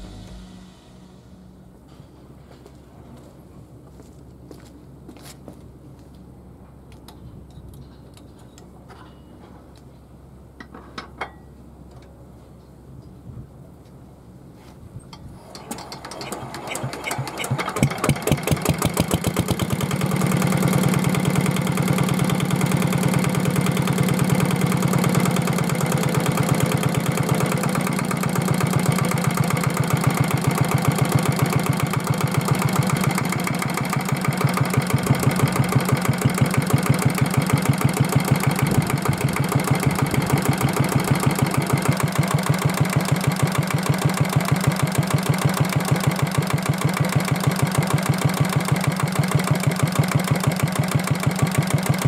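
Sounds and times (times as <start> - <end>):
diesel engine idling: 0.0 - 1.9, 16.3 - 52.0.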